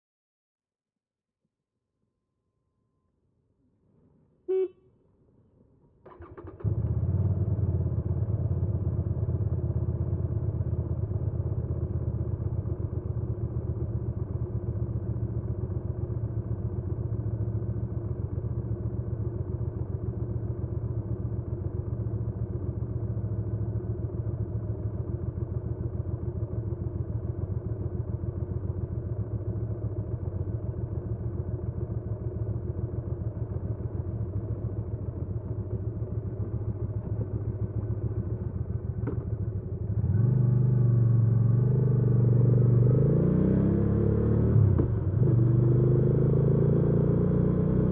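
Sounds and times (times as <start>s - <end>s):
motorcycle engine idling: 6.1s - 40.2s.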